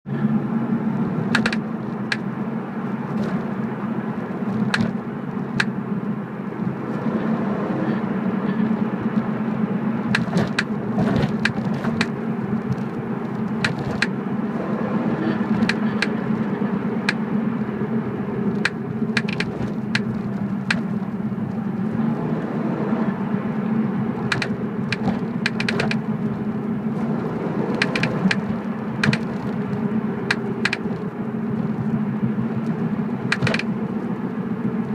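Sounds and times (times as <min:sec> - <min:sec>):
car engine droning: 0:00.0 - 0:34.9
sharp clicks and ticks: 0:01.3 - 0:02.3, 0:04.5 - 0:05.8, 0:10.1 - 0:14.2, 0:15.5 - 0:16.2, 0:17.0 - 0:17.2, 0:18.5 - 0:21.6, 0:24.2 - 0:26.1, 0:27.7 - 0:31.1, 0:32.6 - 0:33.8.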